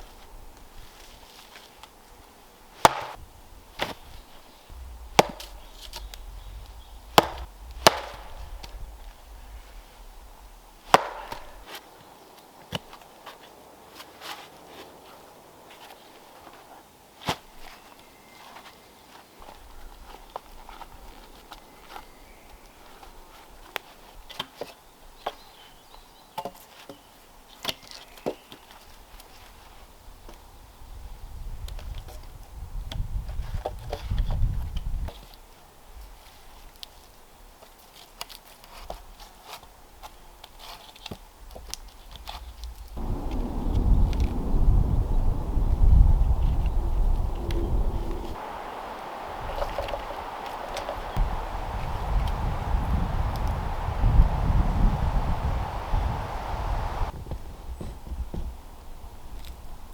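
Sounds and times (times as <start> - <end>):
wood chopping blows: 4.7 - 9.4, 10.8 - 11.8, 48.2 - 57.1.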